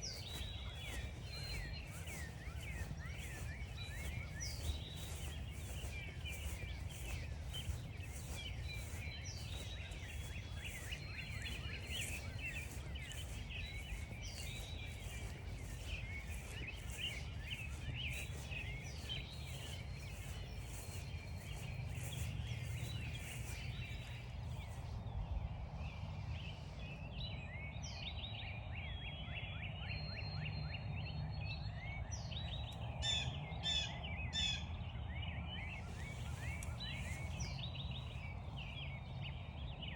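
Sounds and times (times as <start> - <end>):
footsteps crunching on frosty grass: 0.0 - 27.0, 35.6 - 39.3
songbirds chirping and singing: 0.0 - 39.9.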